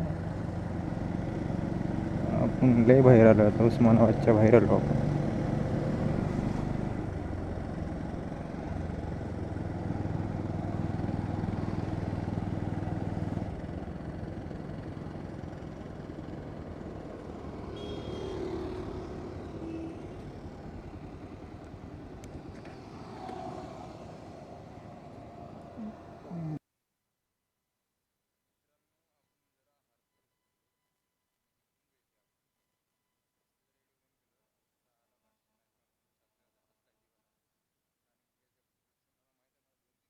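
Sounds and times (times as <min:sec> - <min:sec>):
motorcycle engine running: 0:00.0 - 0:22.6.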